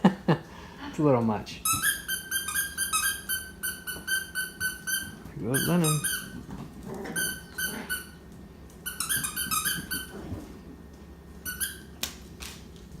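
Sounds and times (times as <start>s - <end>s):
squeaky dog toy squeaking: 1.6s - 6.4s, 8.9s - 10.1s, 11.4s - 11.9s.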